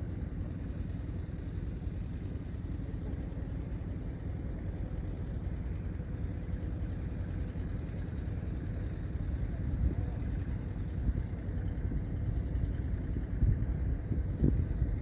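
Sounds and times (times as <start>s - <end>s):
wind buffeting microphone: 11.9s - 15.0s.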